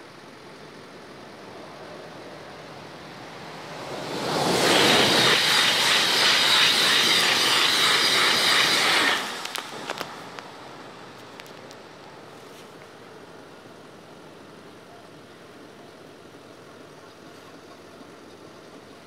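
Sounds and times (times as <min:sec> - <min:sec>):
high train whine: 0:00.0 - 0:19.0
high-speed train rushing past: 0:00.4 - 0:11.5.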